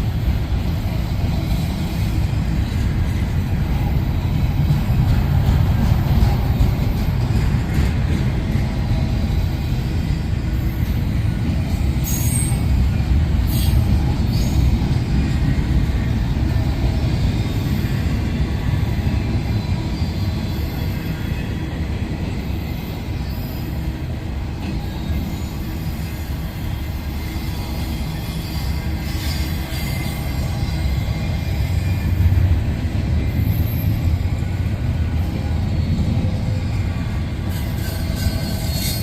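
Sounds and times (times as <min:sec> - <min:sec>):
train wheels rumbling on rail: 0:00.0 - 0:39.0
high wheel squeals: 0:12.0 - 0:12.8, 0:24.7 - 0:32.3, 0:35.5 - 0:39.0.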